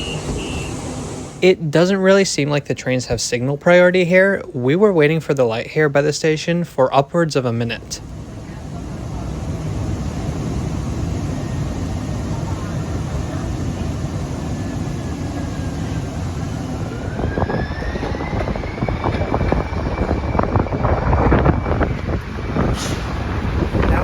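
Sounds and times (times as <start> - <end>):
train traction motor whine: 0.0 - 2.2, 7.6 - 24.0.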